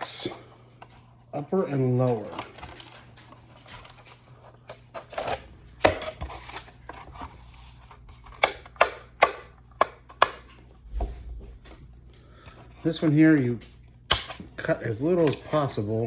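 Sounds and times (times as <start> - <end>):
plastic parts rustling and clicking: 2.1 - 8.8
sharp plastic snaps: 8.3 - 10.5, 14.1 - 14.5.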